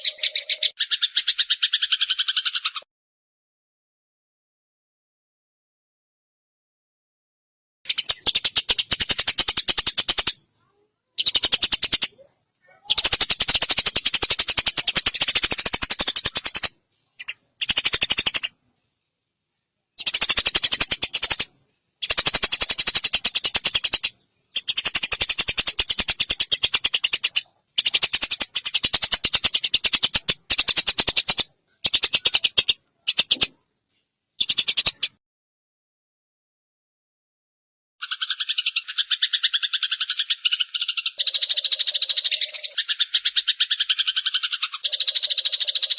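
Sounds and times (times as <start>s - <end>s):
sparrows chattering: 0.0s - 2.8s, 7.9s - 18.6s, 20.0s - 33.6s, 34.4s - 35.2s, 38.0s - 45.9s.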